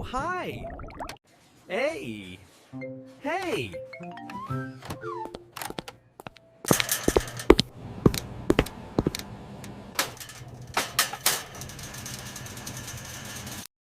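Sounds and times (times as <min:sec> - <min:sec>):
sharp knocks and clicks: 0:05.6 - 0:09.2.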